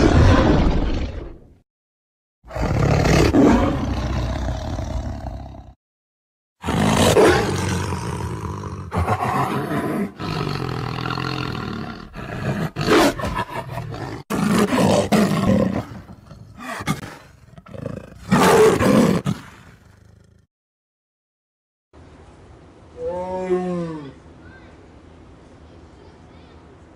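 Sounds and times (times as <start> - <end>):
lions roaring: 2.5 - 5.7, 6.6 - 20.0.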